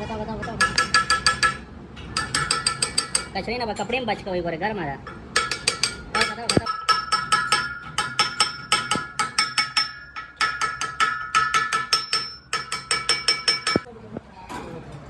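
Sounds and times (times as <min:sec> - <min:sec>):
hammer ringing on steel: 0:00.4 - 0:03.4, 0:05.1 - 0:13.9.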